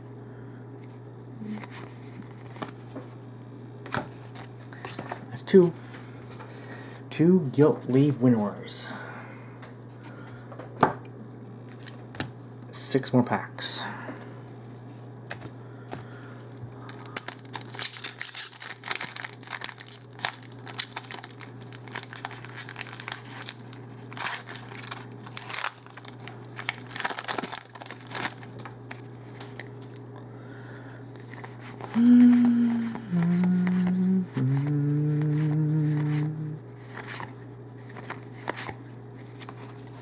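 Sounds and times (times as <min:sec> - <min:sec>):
steady low hum: 0:00.0 - 0:40.0
foil wrapper tearing and crinkling: 0:16.8 - 0:29.8.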